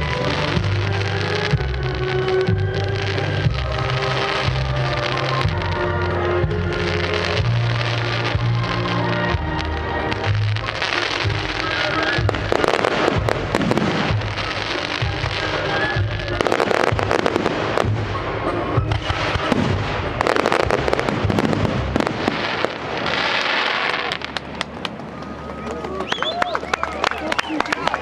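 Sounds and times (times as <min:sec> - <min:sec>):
fireworks crackling and banging: 0:00.0 - 0:28.0
music with low beat: 0:00.1 - 0:22.1.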